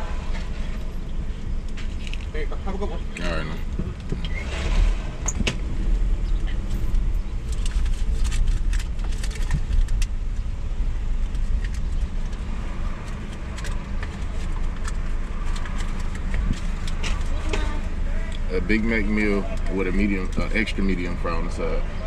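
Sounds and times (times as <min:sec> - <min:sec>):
car engine idling: 0:00.0 - 0:22.0
clicks and rattles of handling: 0:06.9 - 0:10.2, 0:11.2 - 0:17.7.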